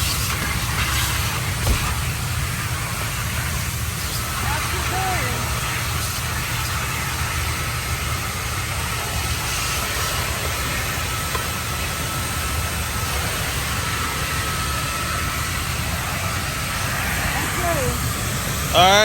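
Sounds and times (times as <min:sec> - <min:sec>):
faint steady whine: 0:00.0 - 0:19.0
vacuum suction rushing: 0:01.0 - 0:06.6, 0:13.0 - 0:19.0.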